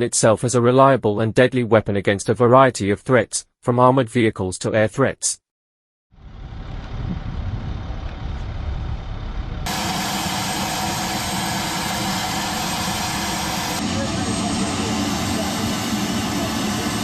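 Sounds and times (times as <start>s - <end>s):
heavy engine running: 6.2s - 17.0s.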